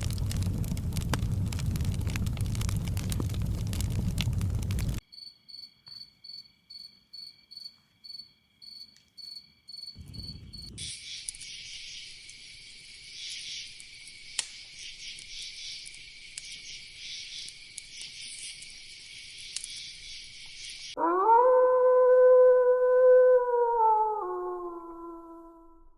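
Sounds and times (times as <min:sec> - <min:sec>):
cricket chirping: 0:03.5 - 0:21.0
insect chorus: 0:03.9 - 0:21.0.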